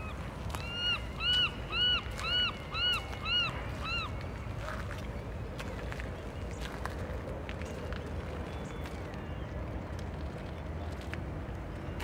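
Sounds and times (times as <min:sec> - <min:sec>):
bird calling: 0:00.0 - 0:04.2
low outdoor background noise: 0:00.0 - 0:12.0.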